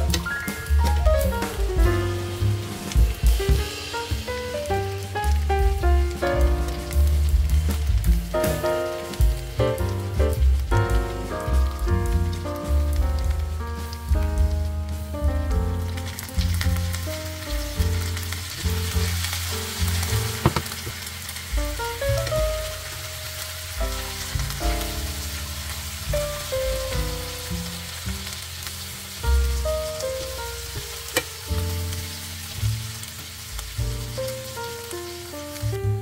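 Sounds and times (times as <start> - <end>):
background music with bass: 0.0 - 36.0
chicken sizzling in oil: 0.0 - 36.0.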